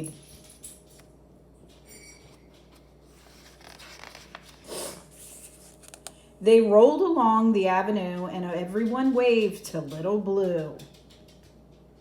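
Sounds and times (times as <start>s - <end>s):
book page turning: 2.6s - 6.2s.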